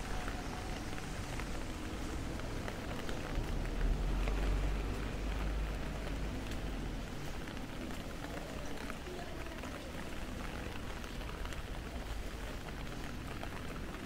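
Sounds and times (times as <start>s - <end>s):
drips and splashes: 0.0s - 14.0s
rain on wet pavement: 0.0s - 14.0s.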